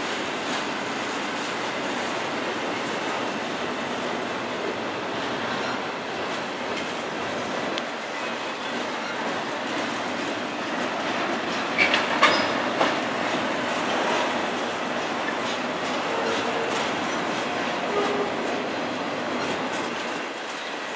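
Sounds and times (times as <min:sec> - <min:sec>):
steel wheels rumbling on rail: 0:00.0 - 0:20.9
metallic clanks and squeaks: 0:11.7 - 0:12.6.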